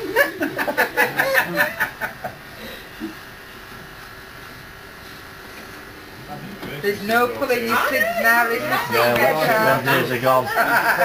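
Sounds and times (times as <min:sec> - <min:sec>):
burst of laughter: 0:00.0 - 0:02.4.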